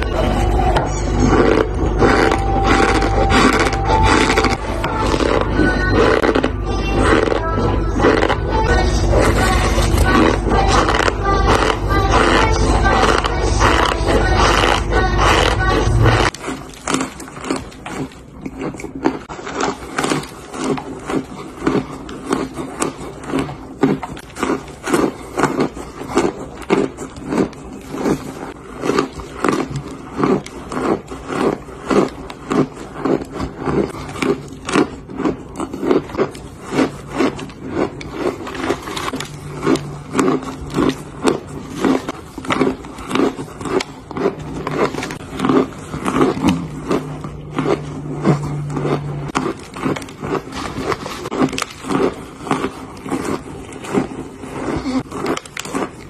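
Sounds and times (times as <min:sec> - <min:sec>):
crunchy chewing: 0:00.0 - 0:56.0.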